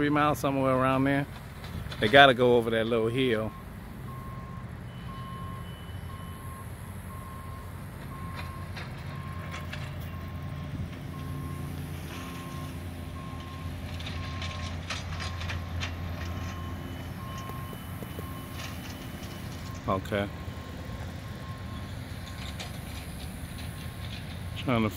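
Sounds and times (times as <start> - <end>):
diesel engine running: 0.0 - 24.9
reversing alarm beeping: 3.4 - 22.7.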